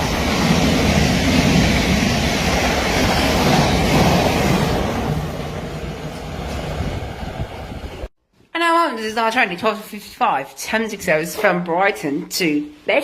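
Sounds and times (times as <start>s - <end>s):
train passing rumble: 0.0s - 8.1s.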